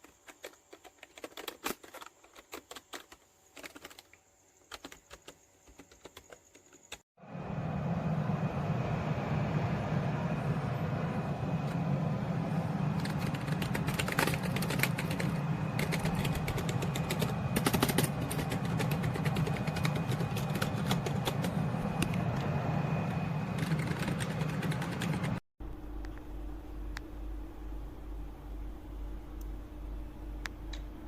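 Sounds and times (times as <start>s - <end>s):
low background hum: 0.0s - 31.0s
keyboard typing clicks: 13.0s - 21.5s.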